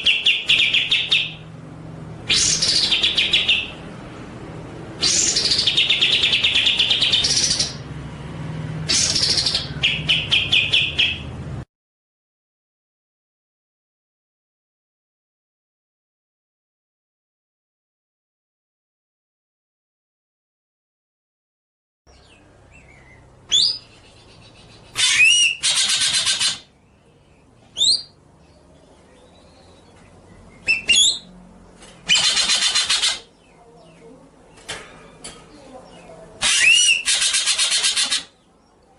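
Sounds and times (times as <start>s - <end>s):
songbird chattering song: 0.0s - 1.5s, 2.3s - 3.9s, 5.0s - 7.8s, 8.9s - 11.3s, 22.1s - 38.9s.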